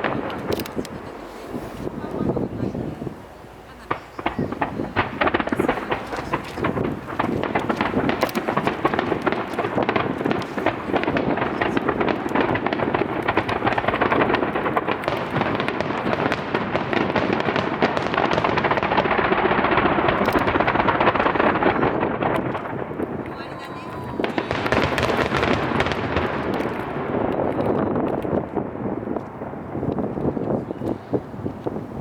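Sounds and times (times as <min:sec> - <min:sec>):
fireworks bursting and crackling: 0:00.0 - 0:32.0.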